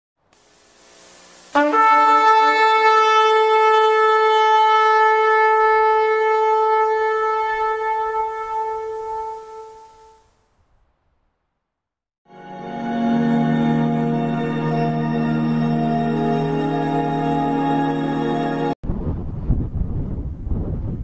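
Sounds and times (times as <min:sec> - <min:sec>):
horn blast: 0:01.4 - 0:10.3.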